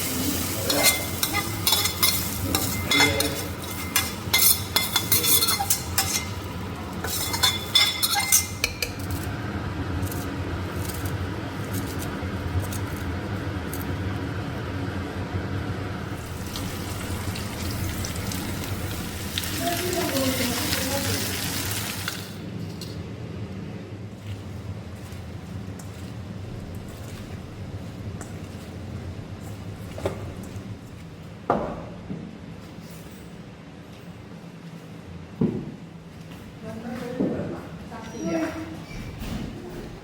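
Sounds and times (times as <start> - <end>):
food sizzling in a pan: 0.0 - 8.6, 16.1 - 22.4
spatula scraping and clinking pan: 0.3 - 9.0.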